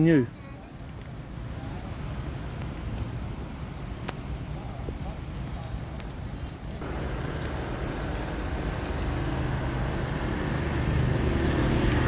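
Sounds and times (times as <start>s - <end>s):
rain hiss: 0.0s - 12.0s
vehicle engine approaching: 6.8s - 12.0s.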